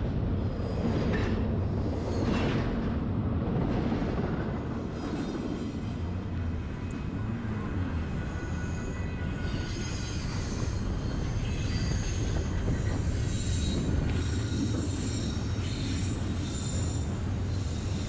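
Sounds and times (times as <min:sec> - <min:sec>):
freight train rumble: 0:00.0 - 0:18.0
high-pitched wheel squeal: 0:08.0 - 0:18.0.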